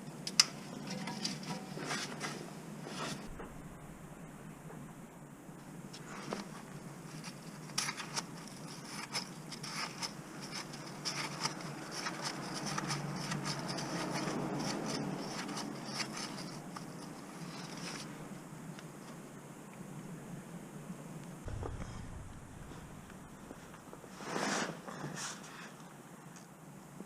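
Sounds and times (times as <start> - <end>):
steady low hum: 0.0 - 24.3
light clicks and scraping: 5.9 - 19.8.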